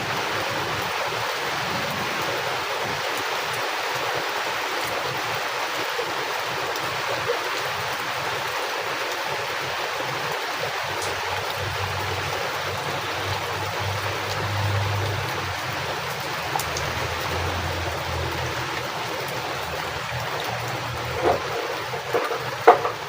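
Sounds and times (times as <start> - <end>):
heavy rain pouring: 0.0 - 23.0
low rumble of wind: 11.6 - 23.0.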